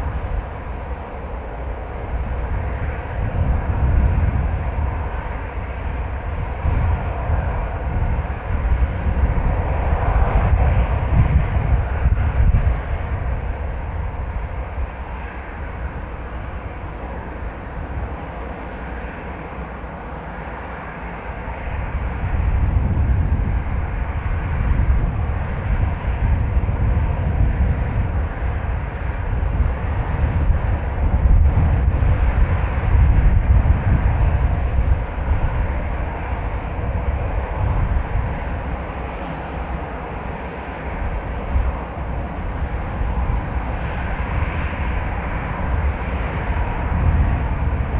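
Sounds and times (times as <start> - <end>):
jet airliner engine roar: 0.0 - 47.9
wind rumbling on microphone: 0.0 - 47.9.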